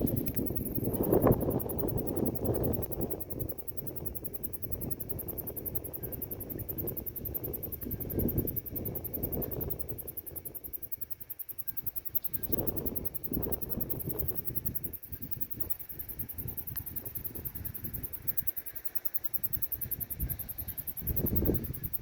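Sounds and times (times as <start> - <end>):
crickets trilling: 0.0 - 22.0
wind buffeting microphone: 0.0 - 22.0.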